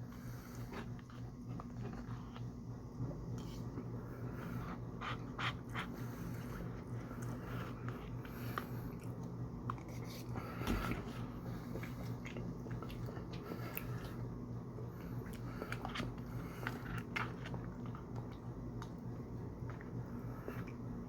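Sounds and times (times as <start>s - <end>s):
steady low hum: 0.0s - 21.0s
person biting and chewing food: 4.8s - 14.3s, 15.0s - 20.0s.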